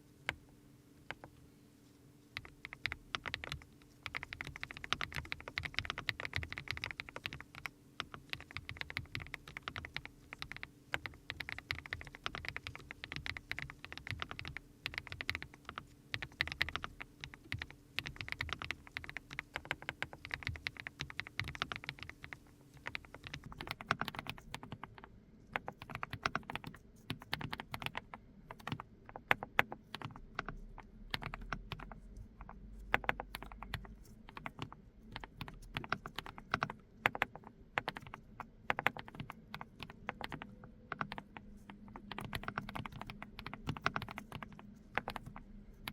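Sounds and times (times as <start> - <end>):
mechanical keyboard typing: 1.1 - 1.4, 2.4 - 45.9.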